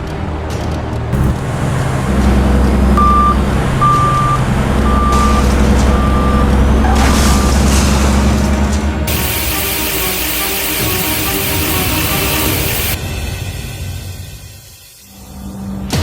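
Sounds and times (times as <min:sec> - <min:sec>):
reversing beeper: 0:01.2 - 0:08.1, 0:09.1 - 0:13.0
toy truck engine running: 0:09.1 - 0:13.0.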